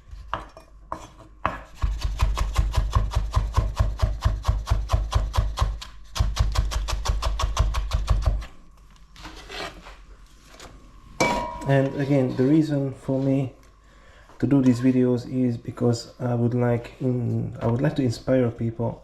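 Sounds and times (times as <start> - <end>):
knife chopping on wooden board: 0.3 - 8.3.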